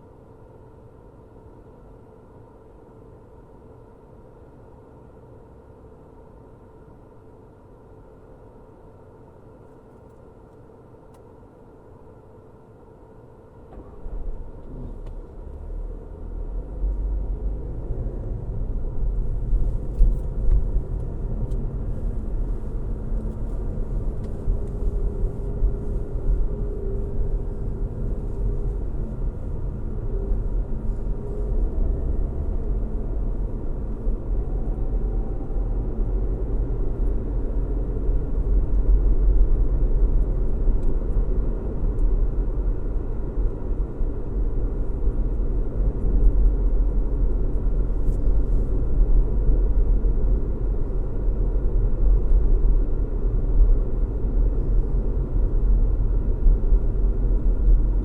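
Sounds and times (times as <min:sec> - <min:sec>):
car road noise and engine hum: 0:13.4 - 0:58.0.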